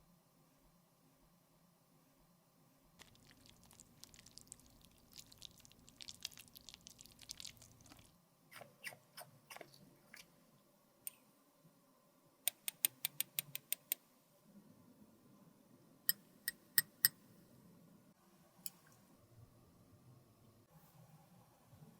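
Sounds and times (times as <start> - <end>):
crackling and scraping of makeup: 3.0 - 8.2.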